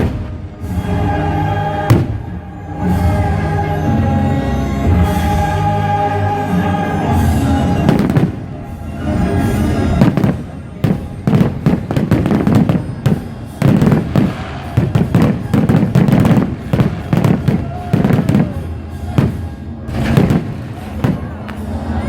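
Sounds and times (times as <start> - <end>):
fireworks bangs and crackle: 0.0 - 0.9, 1.9 - 2.3, 7.8 - 8.7, 9.4 - 22.0
music playing: 0.0 - 22.0.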